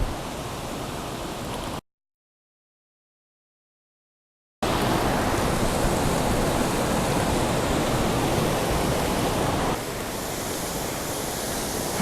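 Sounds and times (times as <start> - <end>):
waterfall rushing: 4.6 - 12.0.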